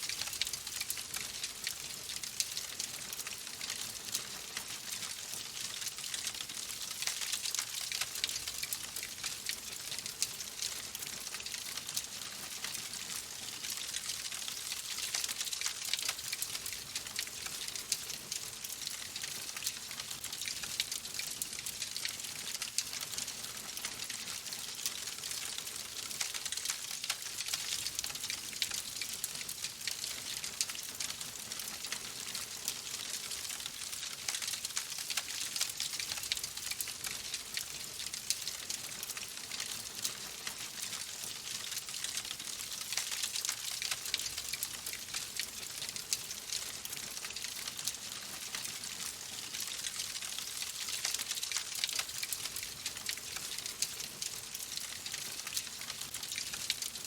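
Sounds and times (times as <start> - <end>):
fireplace fire crackling: 13.6 - 57.0.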